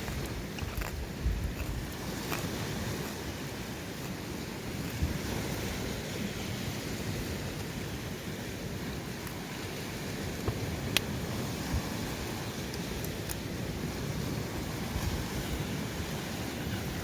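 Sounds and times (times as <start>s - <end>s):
sea surf: 0.0s - 17.0s
wind: 0.0s - 17.0s.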